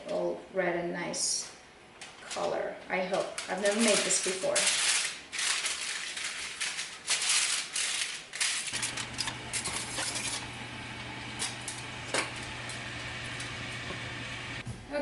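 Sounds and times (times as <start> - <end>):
foil crinkling and rustling: 2.2 - 10.5
steady low hum: 8.8 - 15.0.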